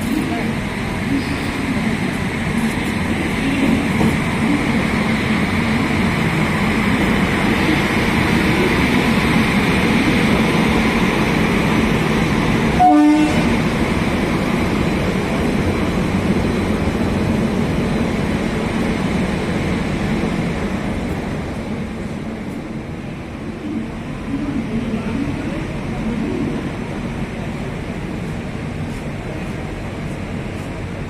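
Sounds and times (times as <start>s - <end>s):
locomotive hum and rumble: 0.0s - 31.0s
train horn toot: 12.8s - 13.6s.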